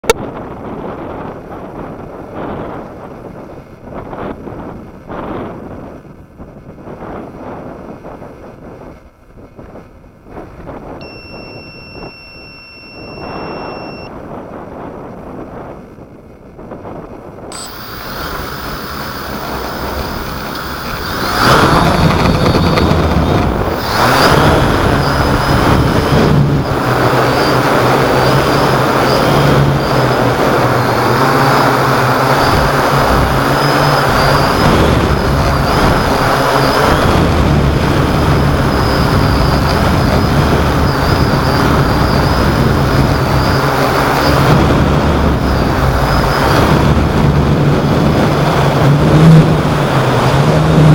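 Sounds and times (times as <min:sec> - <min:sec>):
wind on microphone: 0:00.0 - 0:50.9
drone propellers buzzing: 0:17.5 - 0:50.9.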